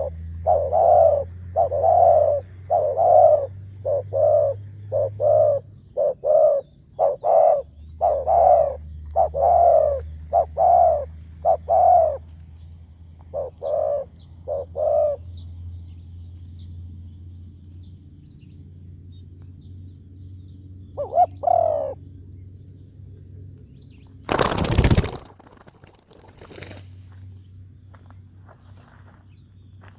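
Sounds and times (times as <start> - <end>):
dove cooing: 0.0 - 12.3, 13.3 - 15.3, 21.0 - 22.0.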